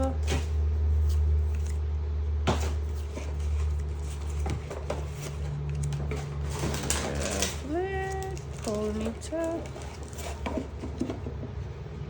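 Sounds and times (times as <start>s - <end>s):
steady low hum: 0.0s - 12.0s
trading cards flipped by hand: 0.4s - 1.8s, 2.5s - 6.3s.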